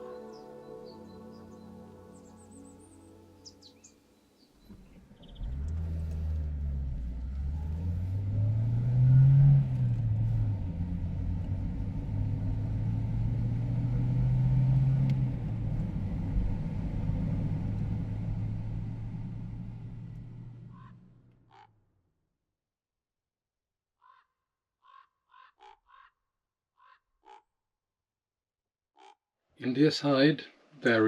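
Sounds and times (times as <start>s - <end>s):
vehicle engine running: 4.6s - 21.5s.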